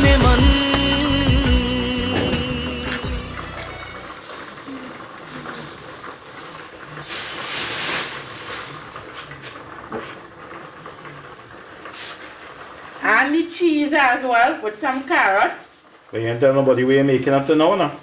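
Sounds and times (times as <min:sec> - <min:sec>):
food hissing on a stovetop: 0:00.0 - 0:13.7.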